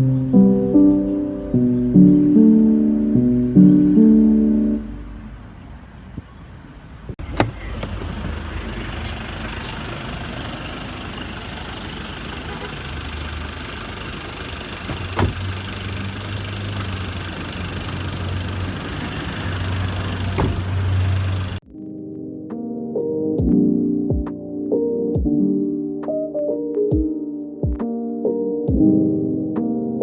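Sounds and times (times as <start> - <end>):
motor rumble with low hum: 7.2 - 21.6.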